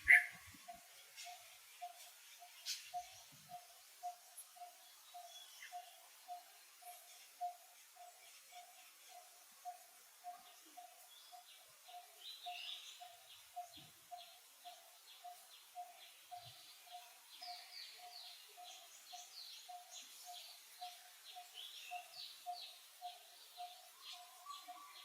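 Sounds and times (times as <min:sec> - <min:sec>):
bird repeating low note: 0:00.0 - 0:00.4
high bird chirps: 0:00.0 - 0:00.4.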